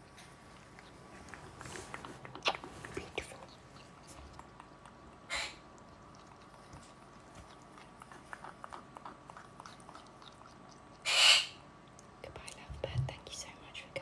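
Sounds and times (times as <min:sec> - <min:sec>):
parrot squawk: 0:05.3 - 0:05.6, 0:11.0 - 0:11.6.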